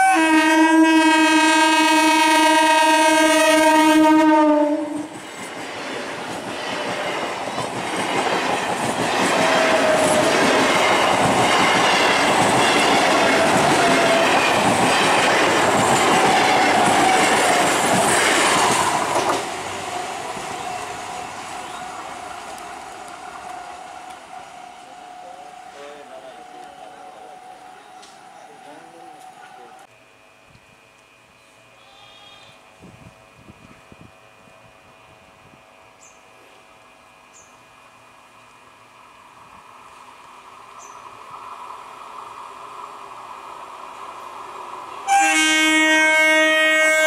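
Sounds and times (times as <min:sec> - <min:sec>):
train horn blast: 0:00.0 - 0:05.1, 0:45.0 - 0:47.0
train wheels clattering over rail joints: 0:05.2 - 0:19.6.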